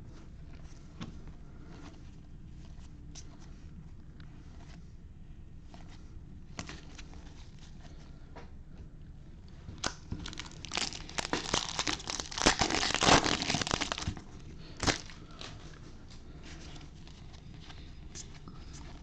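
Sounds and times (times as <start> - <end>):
plastic foil wrapper crinkling: 9.8 - 15.5.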